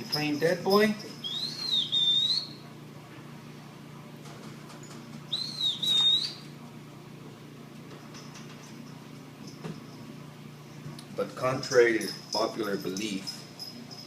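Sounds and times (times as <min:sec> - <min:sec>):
high whistled note: 0:01.2 - 0:02.6, 0:05.3 - 0:06.4.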